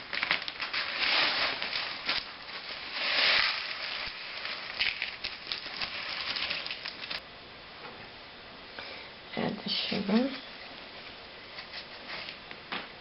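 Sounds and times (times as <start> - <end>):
dry cereal pouring into a bowl: 0.1 - 7.2.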